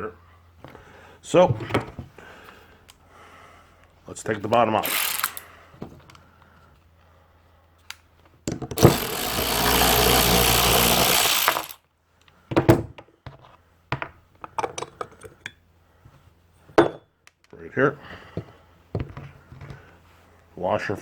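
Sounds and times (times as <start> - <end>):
metal parts clinking: 4.8 - 5.5
power driver running: 4.8 - 5.5, 8.8 - 11.8.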